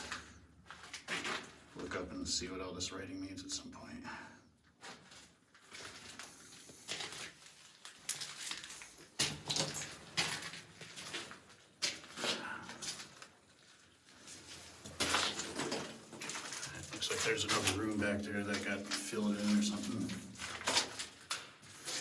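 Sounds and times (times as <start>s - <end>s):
footsteps crunching on rubble: 4.8s - 22.0s.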